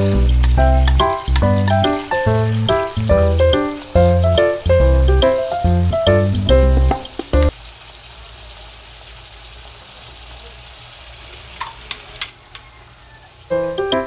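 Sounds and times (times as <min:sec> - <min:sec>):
background music: 0:00.0 - 0:07.5, 0:13.5 - 0:14.0
meat sizzling in a pan: 0:00.0 - 0:13.5.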